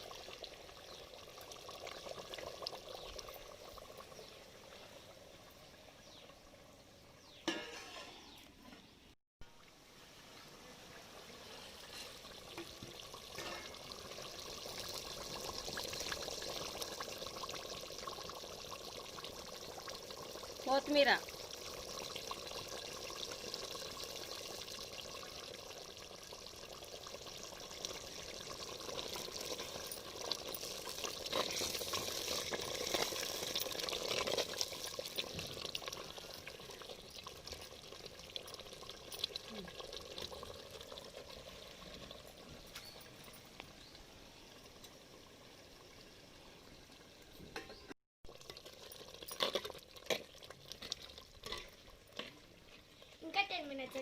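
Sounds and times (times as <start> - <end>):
curry simmering and sizzling in pot: 0.0 - 54.0.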